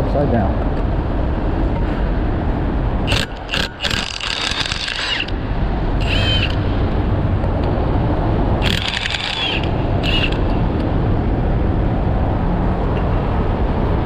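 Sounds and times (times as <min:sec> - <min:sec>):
harsh tool burst: 0:03.1 - 0:05.3, 0:08.6 - 0:10.4
sharp metallic clicks: 0:03.1 - 0:05.4, 0:08.6 - 0:10.9
low engine rumble: 0:05.1 - 0:14.0.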